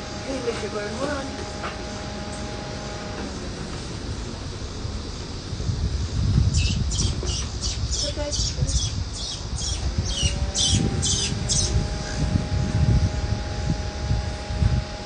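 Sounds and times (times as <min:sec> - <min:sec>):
bird harsh high calls: 0:06.5 - 0:12.2.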